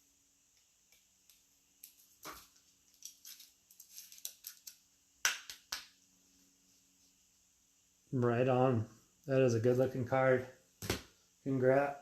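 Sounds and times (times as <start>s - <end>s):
cards rustling and clicking: 1.2s - 4.8s.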